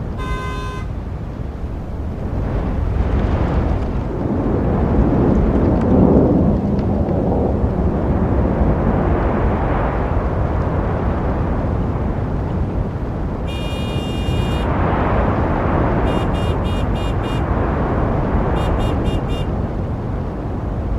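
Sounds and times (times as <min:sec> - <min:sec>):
road traffic rumble: 0:00.0 - 0:20.9
vehicle passing close: 0:01.4 - 0:04.4, 0:07.2 - 0:08.8.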